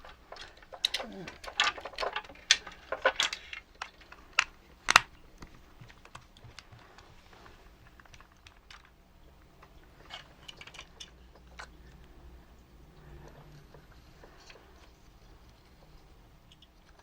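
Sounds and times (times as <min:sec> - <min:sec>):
plastic parts clicking and knocking: 0:00.0 - 0:17.0.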